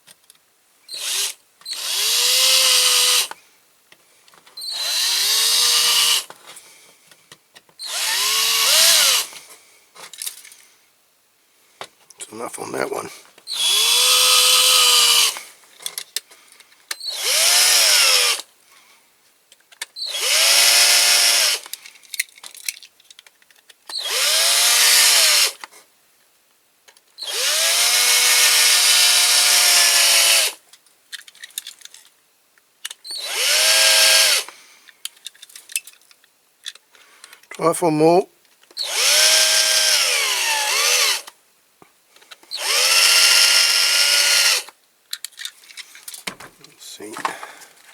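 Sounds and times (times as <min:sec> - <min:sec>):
electric drill drilling: 0:00.9 - 0:03.3, 0:04.6 - 0:06.3, 0:07.8 - 0:09.3, 0:13.5 - 0:15.4, 0:17.0 - 0:18.4, 0:20.0 - 0:21.6, 0:24.0 - 0:25.6, 0:27.2 - 0:30.6, 0:33.1 - 0:34.5, 0:38.8 - 0:41.3, 0:42.5 - 0:44.7.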